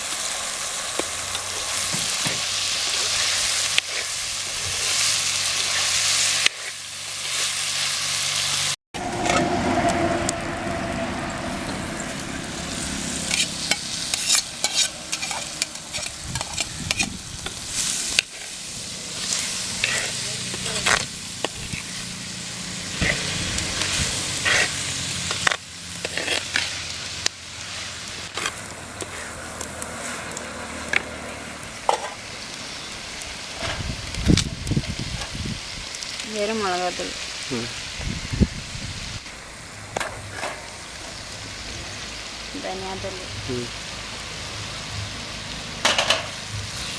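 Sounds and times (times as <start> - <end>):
food sizzling in oil: 0.0 - 46.9
ladle scraping pan: 11.5 - 22.0, 22.9 - 26.9.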